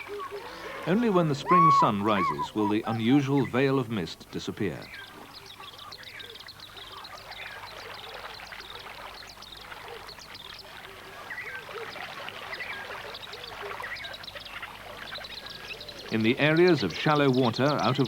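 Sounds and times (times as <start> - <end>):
birds chirping and calling: 0.0 - 8.2, 12.6 - 18.0.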